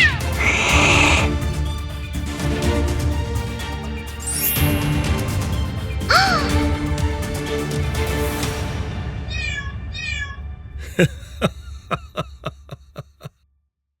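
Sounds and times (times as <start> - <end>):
cartoon background music: 0.0 - 8.6
cat meows: 9.3 - 10.4.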